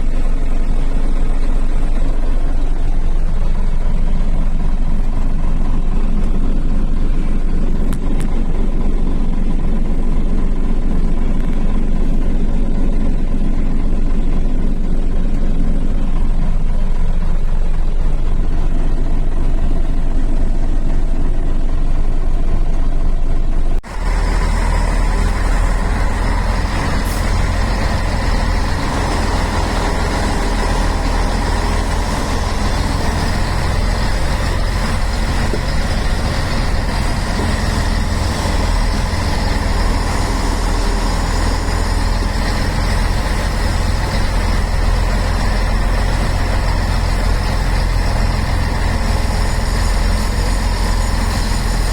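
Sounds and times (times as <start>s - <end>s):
diesel truck engine rumbling: 0.0s - 51.9s.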